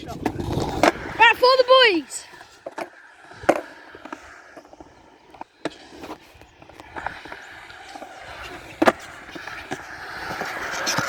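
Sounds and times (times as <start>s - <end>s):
skateboard clacking on concrete: 0.0s - 11.0s.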